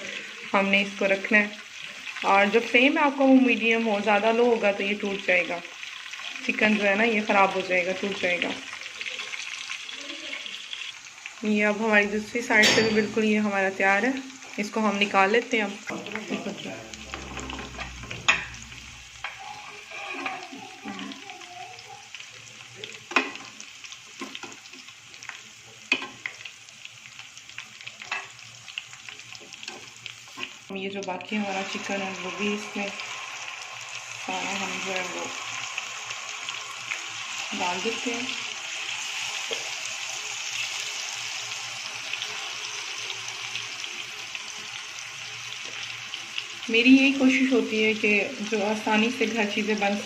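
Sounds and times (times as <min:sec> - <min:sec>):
chicken sizzling in hot oil: 0:00.0 - 0:50.0.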